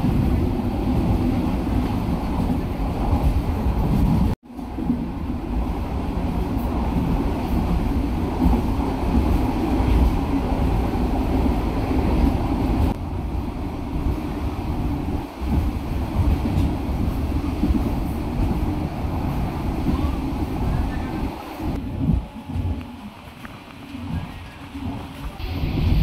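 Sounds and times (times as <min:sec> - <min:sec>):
train rumbling and rattling: 0:00.0 - 0:26.0
wind rushing in: 0:24.8 - 0:26.0.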